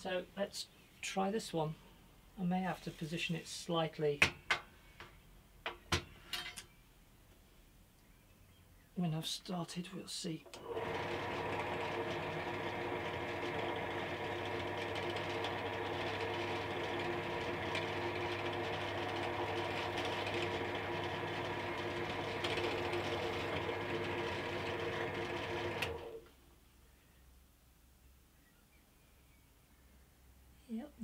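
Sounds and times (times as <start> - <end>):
pillar drill drilling into metal: 10.6 - 26.2.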